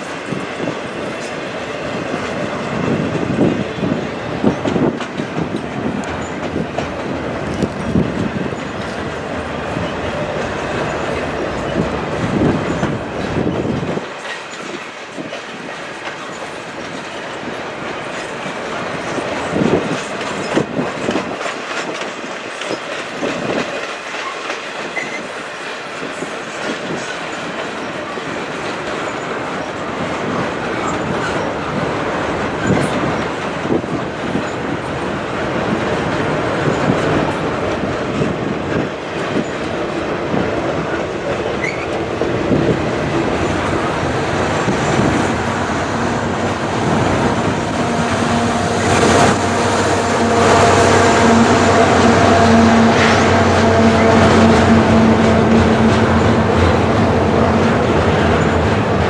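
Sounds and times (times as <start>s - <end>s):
train wheels clicking over rail joints: 0.0s - 59.0s
diesel engine drone: 43.8s - 59.0s.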